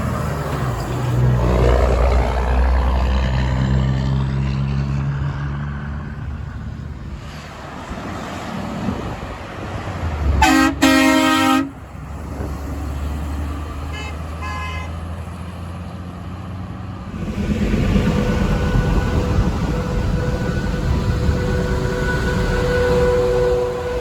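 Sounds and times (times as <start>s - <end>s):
passing traffic engine noise: 0.0s - 24.0s
faint horn toots: 10.4s - 11.8s, 18.3s - 24.0s
truck horn blasts: 10.4s - 11.8s, 13.8s - 15.1s, 18.2s - 24.0s.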